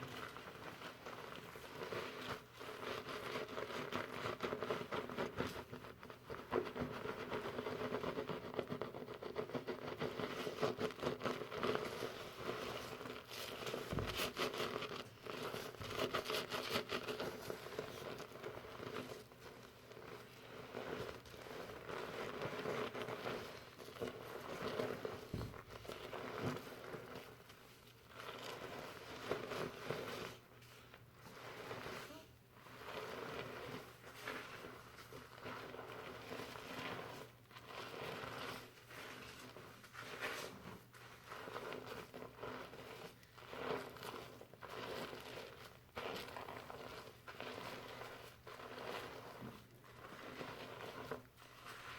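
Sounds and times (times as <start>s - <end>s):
fingers scrubbing shampoo lather: 0.0s - 51.9s
rustling of foam and wet hair: 0.0s - 51.9s.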